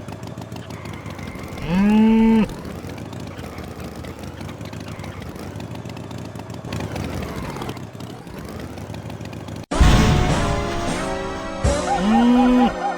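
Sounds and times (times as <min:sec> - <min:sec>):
motor-like drone dipping in pitch: 0:00.6 - 0:05.7.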